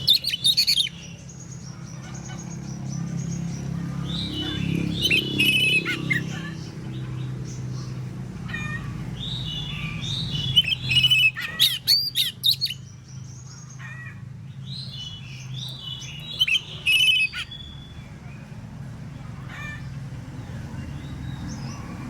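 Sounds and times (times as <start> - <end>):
songbird whistling and trilling: 0.0 - 1.4, 4.0 - 6.5, 9.2 - 13.5, 14.7 - 18.1.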